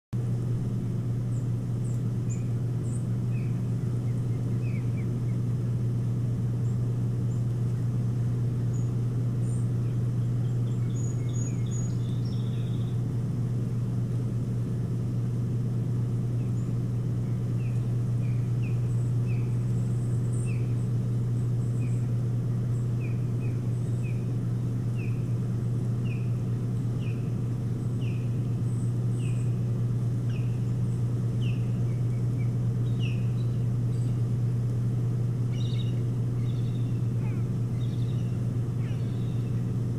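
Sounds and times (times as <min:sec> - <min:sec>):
steady low hum: 0:00.1 - 0:39.9
bird short falling calls: 0:35.5 - 0:39.7.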